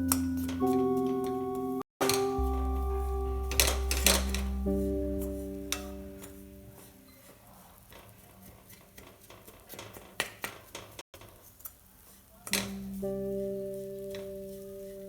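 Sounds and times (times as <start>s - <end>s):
soft instrumental music: 0.0s - 7.1s, 12.5s - 15.0s.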